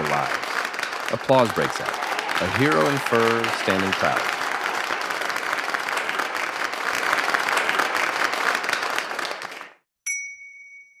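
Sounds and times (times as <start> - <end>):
crowd applauding: 0.0 - 9.8
short high ringing tone: 10.1 - 11.0.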